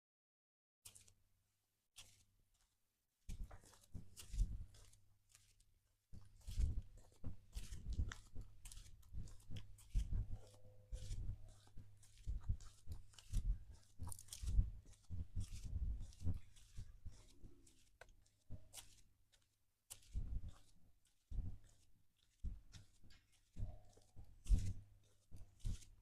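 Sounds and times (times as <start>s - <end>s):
footsteps crunching on a trail: 6.2s - 26.0s.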